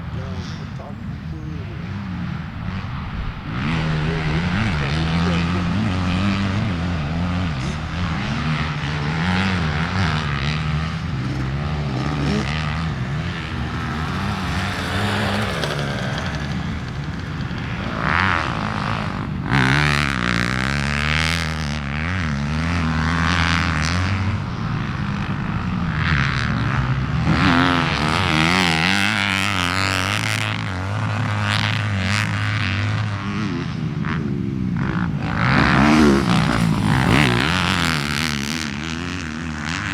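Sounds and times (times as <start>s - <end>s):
dirt bike engine revving: 0.4s - 39.9s.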